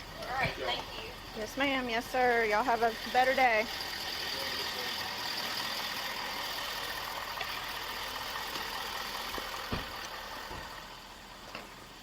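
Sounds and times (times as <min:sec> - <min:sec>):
soft thumps: 0:09.7 - 0:10.7.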